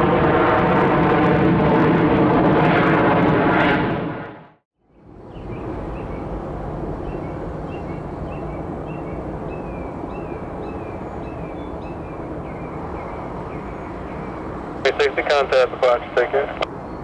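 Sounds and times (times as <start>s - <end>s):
distant jet traffic rumble: 0.0s - 17.0s
small birds chirping: 4.9s - 14.8s.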